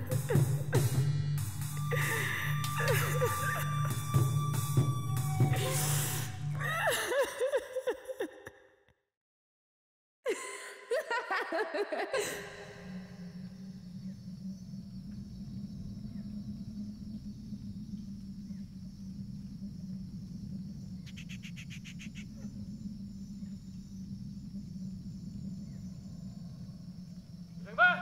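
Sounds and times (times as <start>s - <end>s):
insect drone: 0.0s - 7.6s, 10.9s - 28.0s
low hum: 12.4s - 27.8s
faint bird chirps: 12.8s - 28.0s.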